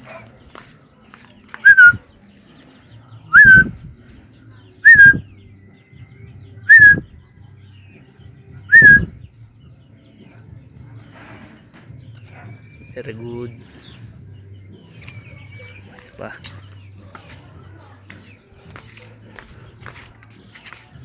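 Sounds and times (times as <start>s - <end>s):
person whistling short notes: 1.6s - 2.0s, 3.3s - 3.7s, 4.9s - 5.2s, 6.7s - 7.0s, 8.7s - 9.1s.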